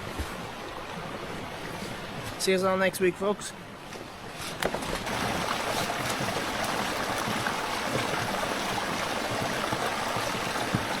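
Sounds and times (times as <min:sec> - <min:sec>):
running water rushing: 0:00.0 - 0:11.0.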